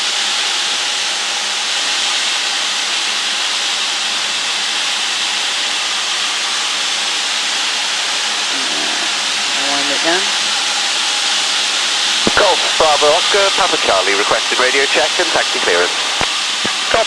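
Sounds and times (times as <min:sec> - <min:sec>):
light aircraft cabin noise: 0:08.5 - 0:10.9, 0:12.2 - 0:17.0.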